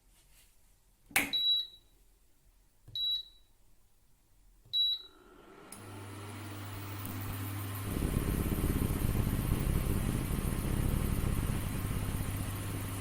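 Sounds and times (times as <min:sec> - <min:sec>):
cooling fan humming: 0:05.0 - 0:13.0.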